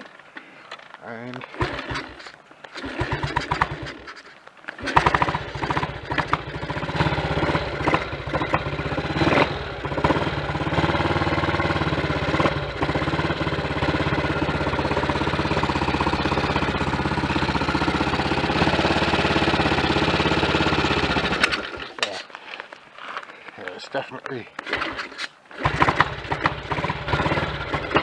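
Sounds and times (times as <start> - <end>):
motorcycle engine starting and idling: 0.0 - 28.0.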